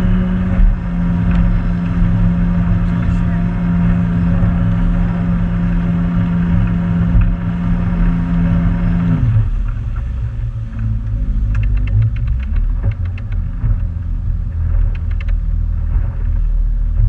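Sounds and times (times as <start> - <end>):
motorboat engine running: 0.0 - 17.0
rapid clicks: 10.8 - 13.9, 14.6 - 16.4.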